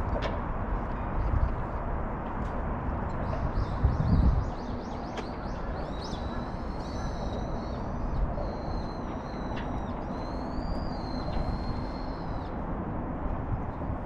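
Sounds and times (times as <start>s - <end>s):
birds whistling high: 3.6s - 12.5s.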